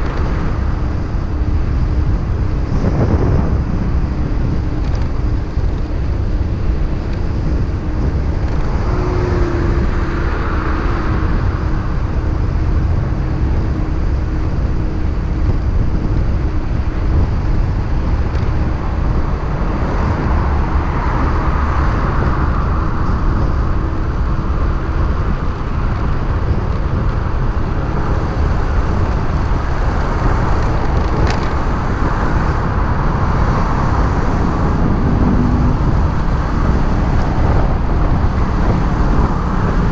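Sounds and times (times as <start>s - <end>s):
motorcycle engine running: 0.0s - 20.6s
road noise: 0.0s - 39.9s
wind rumble on microphone: 0.0s - 39.9s.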